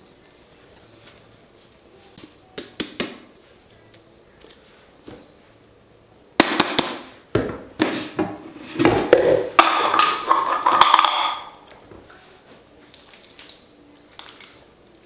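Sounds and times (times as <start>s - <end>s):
kitchenware clattering: 6.4s - 11.7s.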